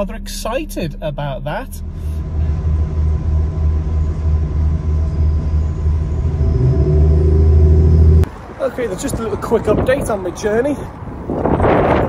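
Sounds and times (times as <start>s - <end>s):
train rumbling inside carriage: 1.3s - 8.3s.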